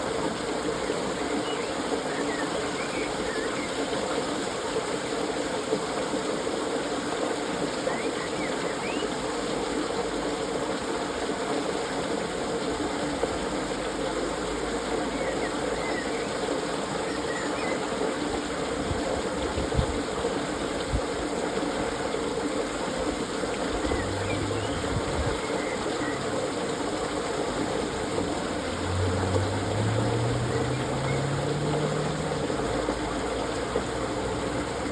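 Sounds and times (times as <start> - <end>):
water splashing through lock gates: 18.1 - 34.9.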